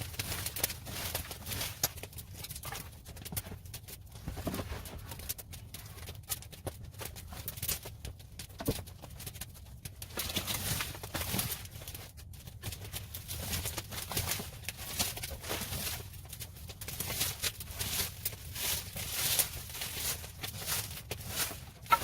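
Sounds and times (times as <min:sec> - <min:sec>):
broom sweeping a floor: 0:17.0 - 0:22.0.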